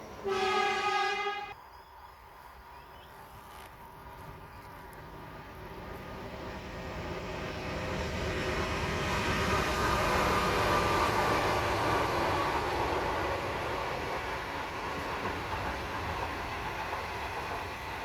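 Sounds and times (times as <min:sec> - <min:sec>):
train approaching: 0:00.0 - 0:02.8, 0:03.8 - 0:18.0.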